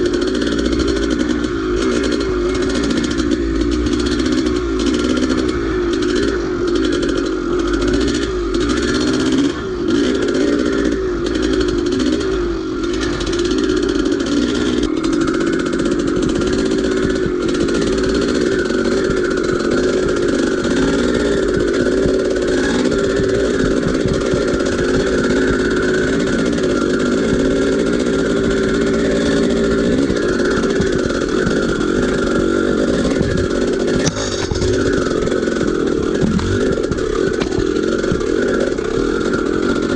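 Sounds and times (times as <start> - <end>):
dirt bike engine revving: 0.0 - 39.9
knocks and clatter: 30.8 - 39.0.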